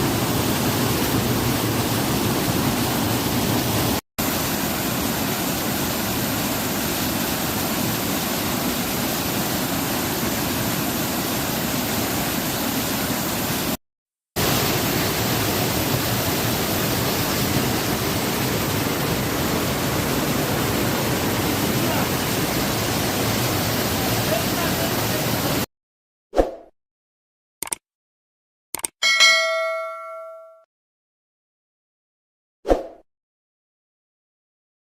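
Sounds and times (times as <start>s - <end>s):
waterfall rushing: 14.4s - 25.6s.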